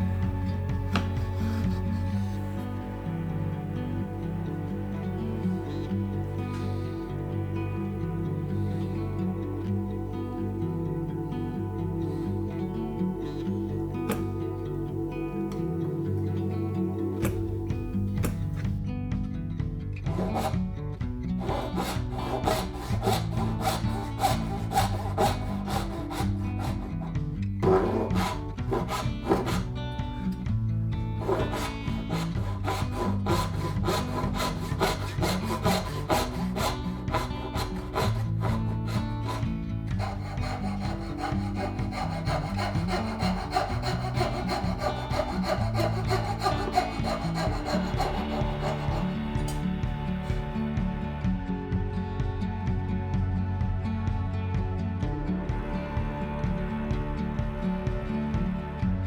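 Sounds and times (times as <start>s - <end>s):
background music with bass line: 0.0s - 59.0s
hand saw cutting wood: 1.0s - 2.6s, 14.0s - 14.4s, 18.2s - 18.6s, 20.1s - 20.7s, 21.3s - 30.4s, 31.2s - 49.8s.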